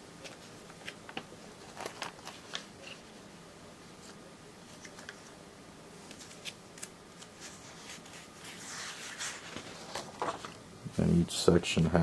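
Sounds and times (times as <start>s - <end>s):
paper pages rustling: 0.2s - 3.1s, 6.0s - 10.6s.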